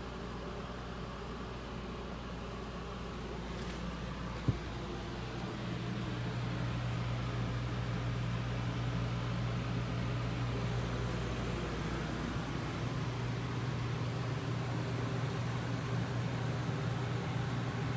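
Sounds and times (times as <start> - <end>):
low machine hum: 0.0 - 17.9.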